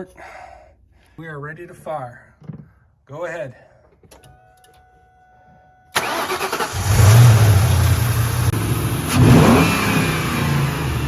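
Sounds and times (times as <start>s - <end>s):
car engine starting and idling: 5.9s - 11.0s
engine revving: 6.0s - 11.0s.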